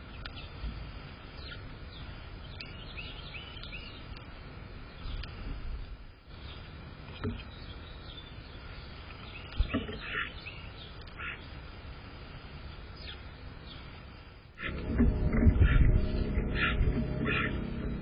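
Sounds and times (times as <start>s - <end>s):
steady background hiss and rumble: 0.0s - 18.0s
bird chirps: 14.6s - 18.0s.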